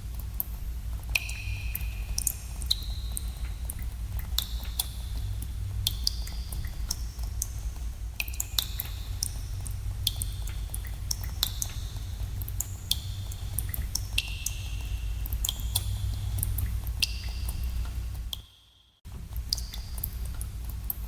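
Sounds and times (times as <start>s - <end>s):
water drops plinking into pools: 1.0s - 7.5s, 8.2s - 18.5s.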